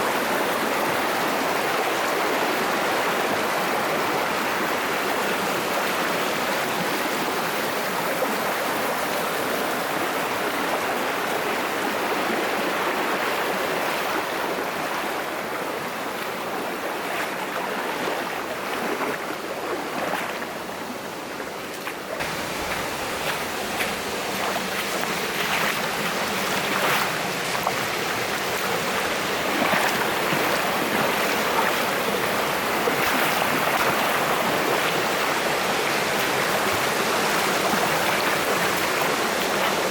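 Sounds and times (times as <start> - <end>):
stream rushing over rocks: 0.0 - 39.9
short sharp splashes: 21.8 - 27.1.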